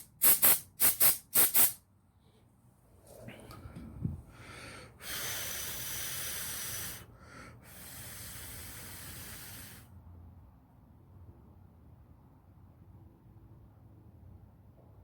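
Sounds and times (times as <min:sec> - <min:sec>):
aerosol spray can hissing: 0:00.0 - 0:01.8.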